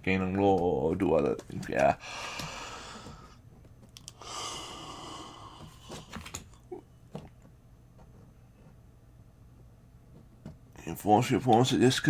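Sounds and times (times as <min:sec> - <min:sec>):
person breathing: 0:02.0 - 0:03.4, 0:04.1 - 0:06.4
small clicks: 0:03.8 - 0:04.2.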